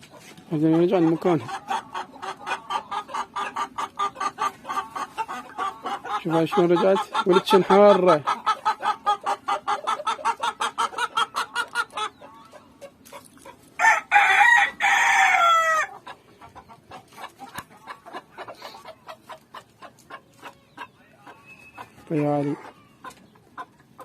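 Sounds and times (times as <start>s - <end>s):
chickens clucking: 0.0s - 24.0s
rooster crowing: 13.8s - 15.9s.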